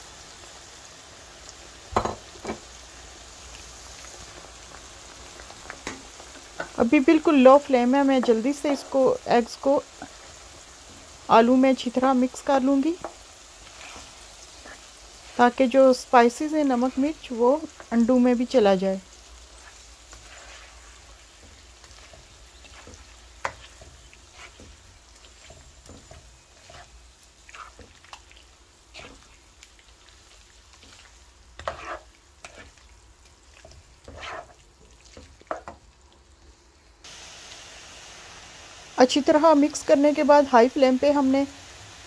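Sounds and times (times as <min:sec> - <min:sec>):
potatoes and eggs sizzling: 0:00.0 - 0:42.0
spatula scraping a pan: 0:05.2 - 0:11.2, 0:12.0 - 0:18.3, 0:19.2 - 0:35.9.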